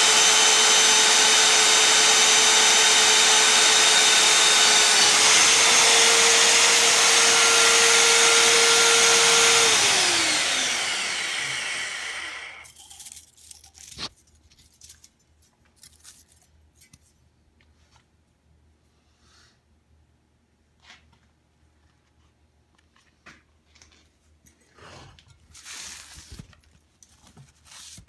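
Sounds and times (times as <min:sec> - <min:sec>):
drill press motor spinning down: 0:00.0 - 0:12.7.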